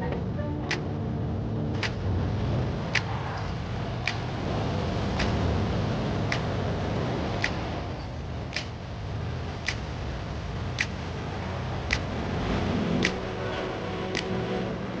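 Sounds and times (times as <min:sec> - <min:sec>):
steady low rumble: 0:00.0 - 0:15.0
sharp ticks: 0:02.9 - 0:04.3, 0:05.2 - 0:05.4, 0:06.3 - 0:06.5, 0:07.4 - 0:08.8, 0:09.6 - 0:10.0, 0:10.7 - 0:11.0, 0:11.8 - 0:12.1, 0:13.0 - 0:13.2.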